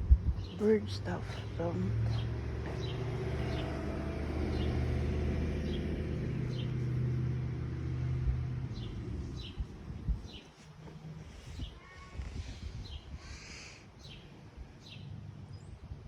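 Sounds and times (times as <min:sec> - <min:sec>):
vehicle engine humming: 0:00.4 - 0:11.6.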